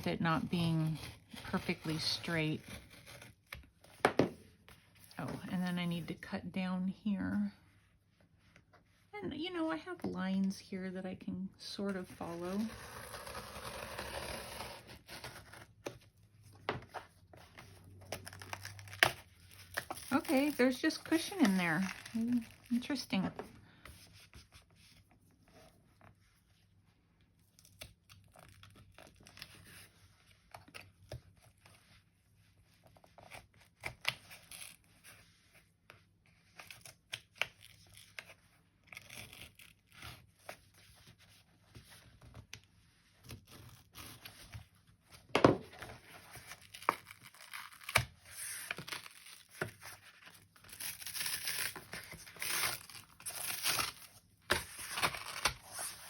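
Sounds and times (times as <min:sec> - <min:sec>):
foam and paper tearing: 0:00.0 - 0:03.6, 0:11.9 - 0:15.9, 0:17.8 - 0:23.2, 0:36.6 - 0:41.2, 0:45.8 - 0:56.0.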